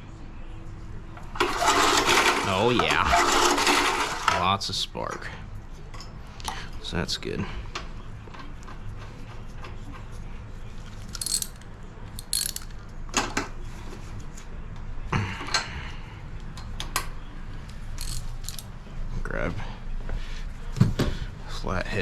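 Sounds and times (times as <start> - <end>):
metal tool scraping: 11.2 - 11.6, 12.2 - 12.7, 18.0 - 18.6
ratchet clicking: 11.2 - 11.6, 12.2 - 12.8, 18.0 - 18.7.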